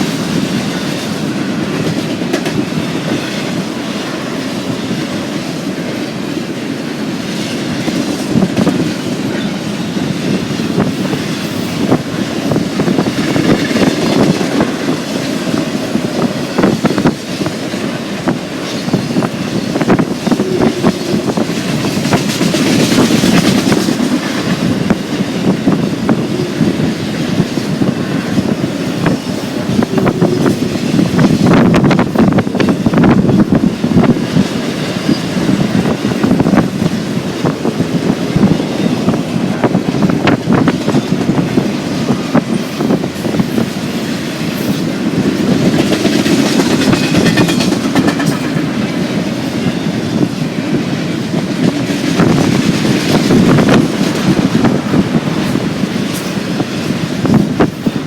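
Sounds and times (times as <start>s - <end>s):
train wheels rumbling on rail: 0.0s - 58.0s
wheels clicking over rail joints: 10.4s - 58.0s.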